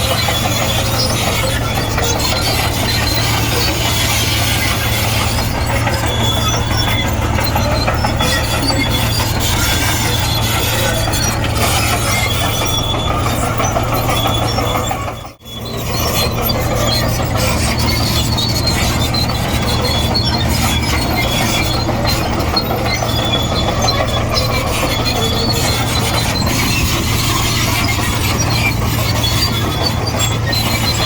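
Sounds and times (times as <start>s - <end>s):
bulldozer diesel engine running: 0.0s - 31.0s
steel tracks squealing and clattering: 0.0s - 31.0s.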